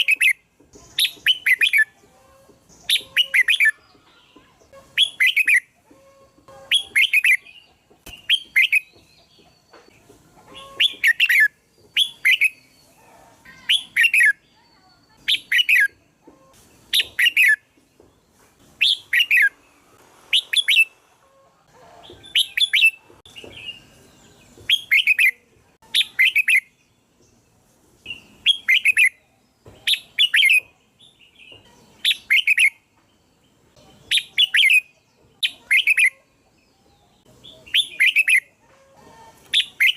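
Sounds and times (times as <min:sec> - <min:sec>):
bird singing whistled phrases: 0:24.7 - 0:26.7, 0:32.0 - 0:32.8, 0:34.0 - 0:36.2, 0:37.6 - 0:38.5.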